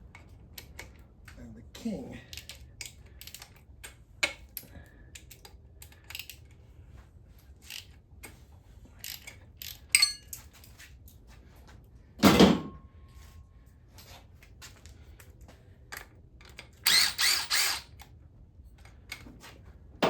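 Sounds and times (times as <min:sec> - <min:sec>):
metal clicks and clinks: 0:02.3 - 0:06.5, 0:09.0 - 0:10.7.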